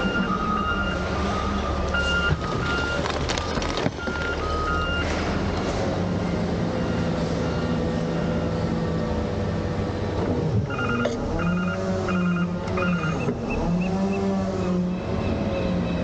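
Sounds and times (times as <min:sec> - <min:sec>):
reversing alarm beeping: 0:00.0 - 0:03.1, 0:04.0 - 0:05.2, 0:10.7 - 0:14.3.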